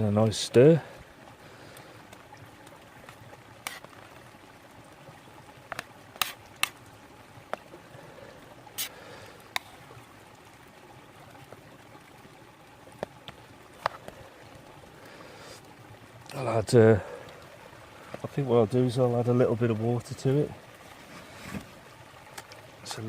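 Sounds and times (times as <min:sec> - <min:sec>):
brook babbling: 0:00.0 - 0:23.0.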